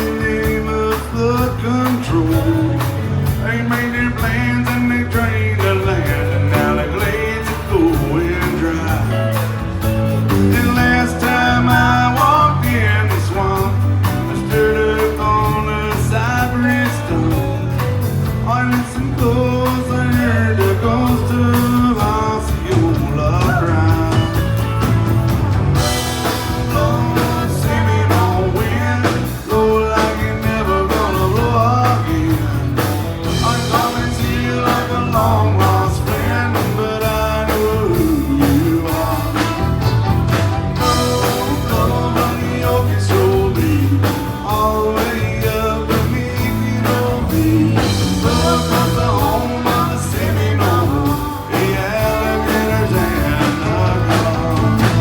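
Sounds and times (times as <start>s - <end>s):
person singing: 0.0s - 9.5s, 10.2s - 24.9s, 25.8s - 55.0s
bass and drum beat: 0.0s - 55.0s
electric guitar: 0.0s - 55.0s.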